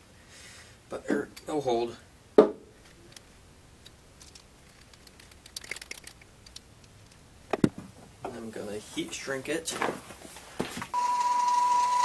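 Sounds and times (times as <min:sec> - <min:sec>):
quick run of small clicks: 0:04.2 - 0:07.2.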